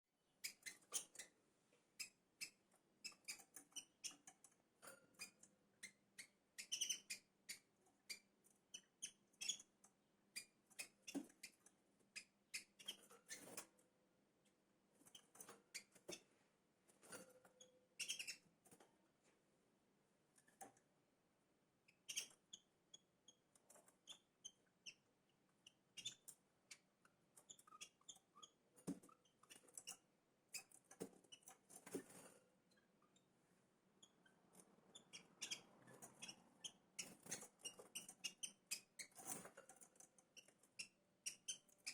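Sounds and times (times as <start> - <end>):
small birds chirping: 0.4 - 13.7, 15.0 - 16.3, 17.0 - 18.8, 21.8 - 41.9.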